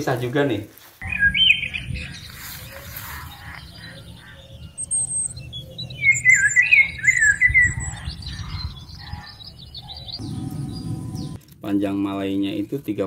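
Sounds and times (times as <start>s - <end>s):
birds chirping and squawking: 1.0s - 11.4s.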